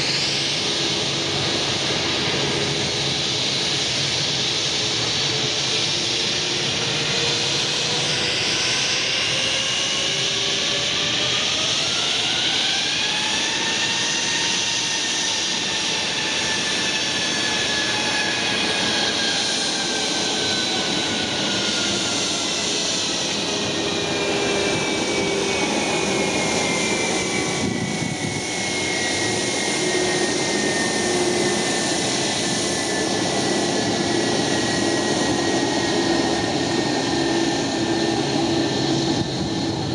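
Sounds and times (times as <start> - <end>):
jet engine whine: 0.0 - 39.9
jet engines roaring: 0.0 - 39.9.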